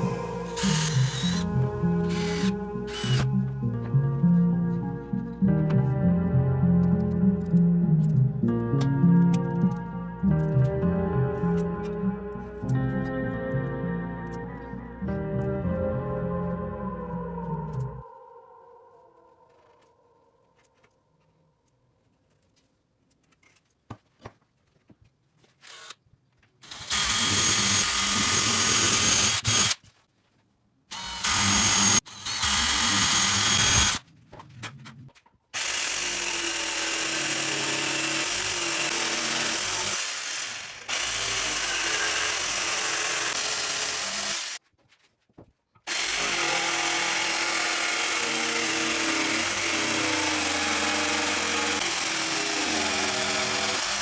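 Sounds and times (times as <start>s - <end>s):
electric drill whining: 0.0s - 5.3s, 25.6s - 26.0s, 26.6s - 29.8s, 30.9s - 34.0s, 35.6s - 44.6s, 45.9s - 54.0s.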